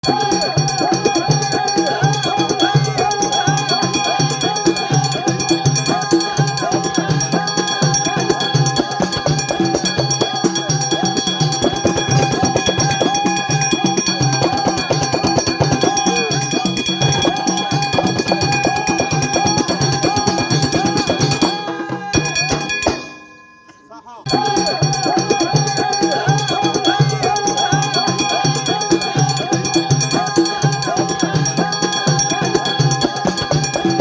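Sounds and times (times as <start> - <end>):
drum and percussion music: 0.0 - 34.0.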